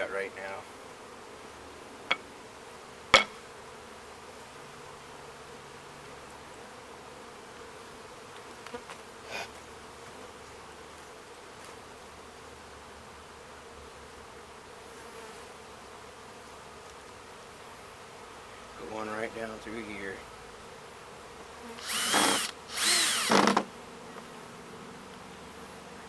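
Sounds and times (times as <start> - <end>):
bees buzzing: 14.6 - 26.0.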